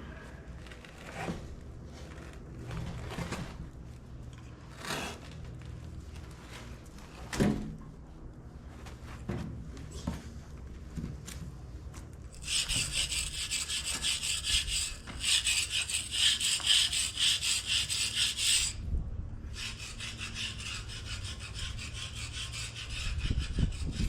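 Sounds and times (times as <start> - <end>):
scraping dirt off cast iron: 12.4 - 18.8
low steady hum: 17.8 - 24.0.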